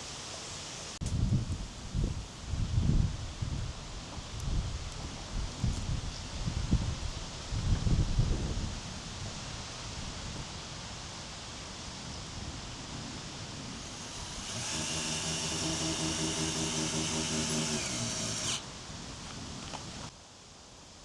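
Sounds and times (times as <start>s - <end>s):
small electric motor whining: 13.7s - 18.7s.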